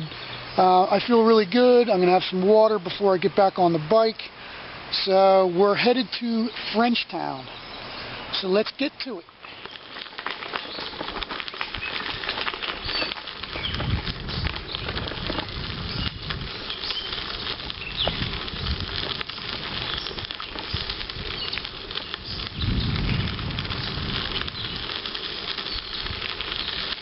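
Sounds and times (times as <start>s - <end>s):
bicycle tyres on gravel: 0.0s - 27.0s
bird chirps: 7.4s - 8.2s
wind rumbling on microphone: 9.6s - 27.0s.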